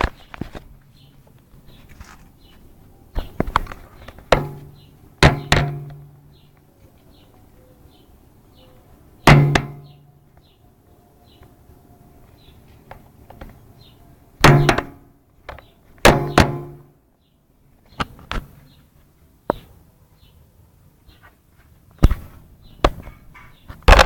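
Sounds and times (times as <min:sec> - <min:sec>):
loud ringing knocks: 0:04.3 - 0:06.1, 0:09.2 - 0:10.0, 0:14.4 - 0:15.0, 0:16.0 - 0:16.9.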